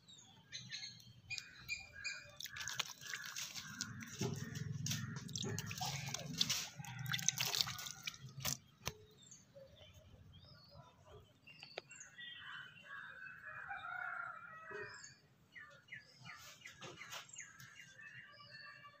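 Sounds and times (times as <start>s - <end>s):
small birds chirping: 0.0s - 13.2s.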